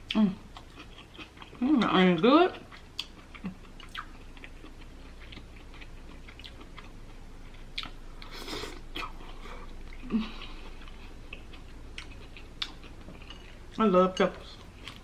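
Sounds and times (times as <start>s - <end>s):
person chewing and biting: 2.7s - 13.4s.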